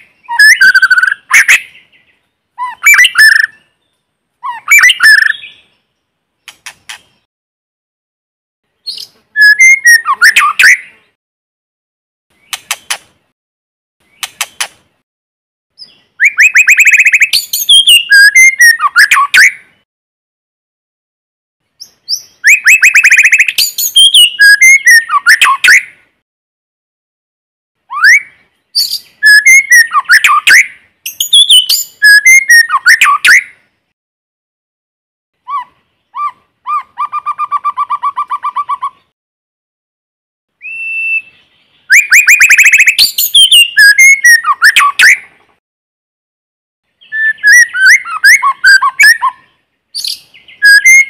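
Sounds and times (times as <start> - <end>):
bird singing whistles and trills: 0.0 - 5.9, 8.8 - 11.0, 15.8 - 19.8, 21.8 - 25.9, 27.9 - 33.6, 40.6 - 45.3, 47.0 - 51.0.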